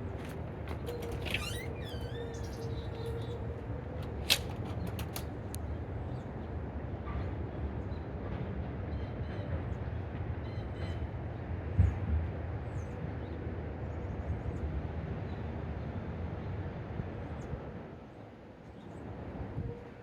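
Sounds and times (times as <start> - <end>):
small birds chirping: 0.1 - 3.6
sharp clicks: 4.0 - 5.6.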